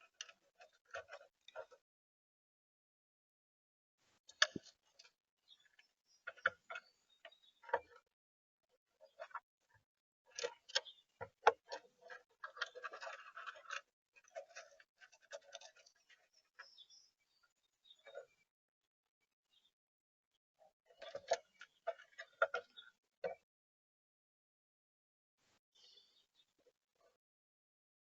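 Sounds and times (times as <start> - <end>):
birds pecking seed on feeder: 0.0 - 1.8, 4.2 - 8.1, 8.9 - 18.5, 20.6 - 23.4
scratchy rustle: 11.7 - 16.3.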